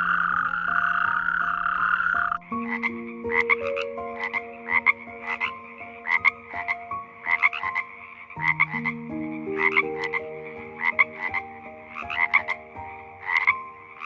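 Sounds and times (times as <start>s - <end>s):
croaking calls: 0.0s - 14.0s
soft background music: 0.0s - 14.0s.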